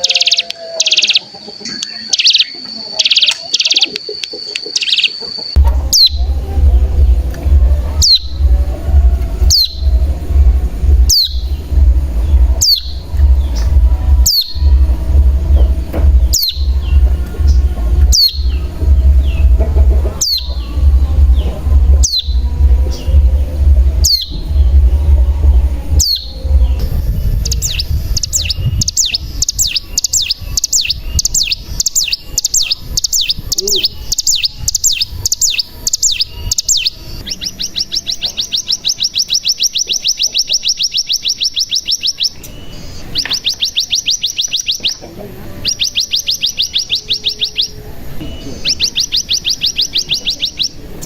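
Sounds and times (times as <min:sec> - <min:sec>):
bird calling high notes: 0:00.0 - 0:44.9
bird trill: 0:00.0 - 0:51.0
steady low rumble: 0:05.6 - 0:38.9.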